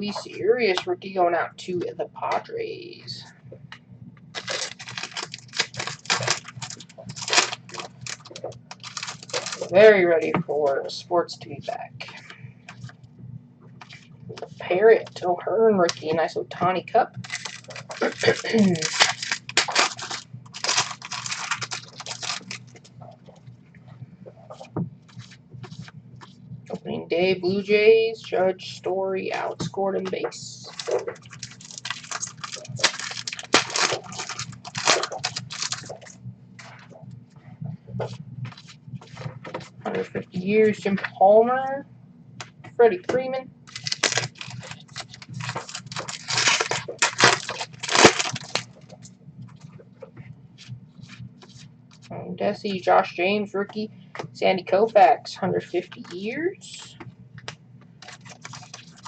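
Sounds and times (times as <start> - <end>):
foil wrapper crinkling: 4.3 - 9.9, 17.2 - 22.9, 30.5 - 36.2, 43.7 - 49.0, 58.0 - 59.0
trading cards flicking and rustling: 4.4 - 9.9, 17.2 - 23.0, 29.6 - 36.8, 43.7 - 52.1, 57.4 - 59.0.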